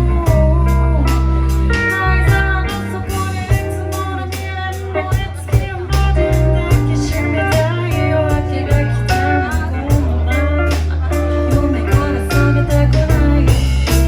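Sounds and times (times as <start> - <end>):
live blues band playing: 0.0 - 14.0.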